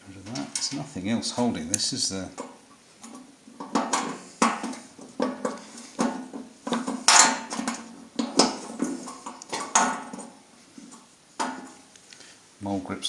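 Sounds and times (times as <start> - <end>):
metal knocks and clanks: 2.4 - 11.8.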